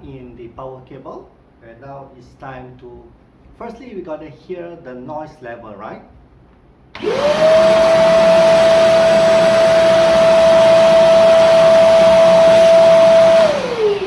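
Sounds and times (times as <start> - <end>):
vacuum cleaner motor whine: 7.0 - 14.0.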